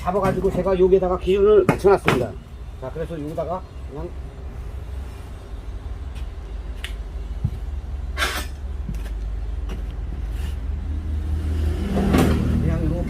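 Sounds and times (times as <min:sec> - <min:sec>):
steady low hum: 0:01.8 - 0:11.1.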